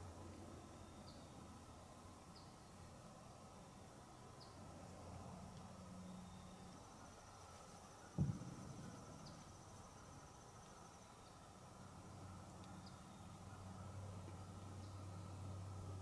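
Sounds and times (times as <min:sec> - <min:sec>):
low steady hum: 0:00.0 - 0:16.0
insect trill: 0:05.8 - 0:13.5
dull thump: 0:08.2 - 0:08.9.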